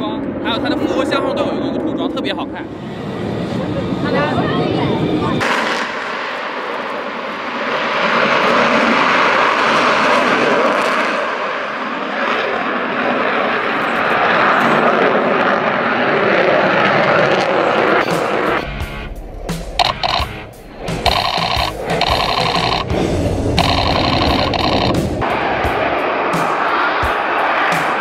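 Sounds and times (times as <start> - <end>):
fighter jets roaring overhead: 0.0 - 28.0.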